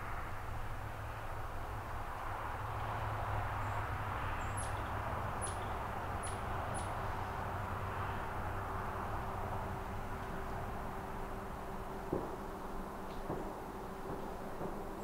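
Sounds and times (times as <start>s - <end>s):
outdoor hiss: 10.3s - 15.0s.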